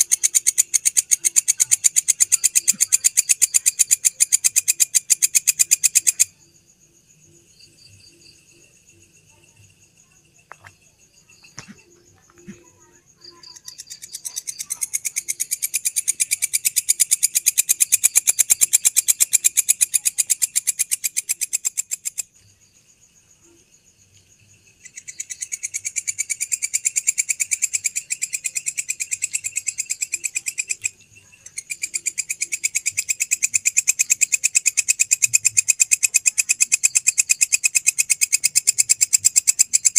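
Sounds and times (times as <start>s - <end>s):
grasshopper buzzing trill: 0.0s - 6.4s, 11.3s - 22.3s
high-pitched insect calls: 0.0s - 39.9s.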